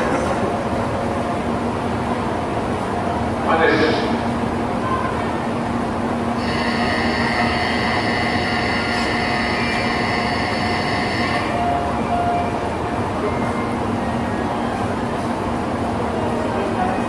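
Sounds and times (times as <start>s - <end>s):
train mechanical rumble: 0.0s - 17.0s
high even whine: 6.2s - 12.4s.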